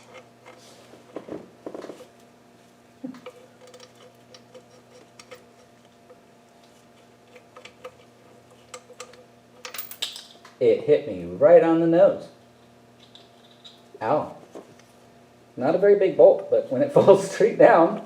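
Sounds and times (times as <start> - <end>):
small bolt dropping: 8.7 - 10.6.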